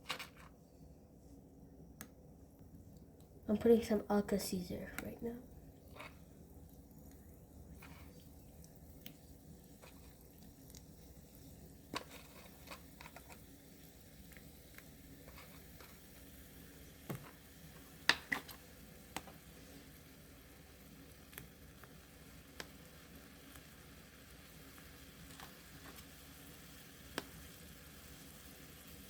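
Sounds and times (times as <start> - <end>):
small clicks and pops: 18.0 - 19.4, 21.2 - 23.7, 27.1 - 27.5.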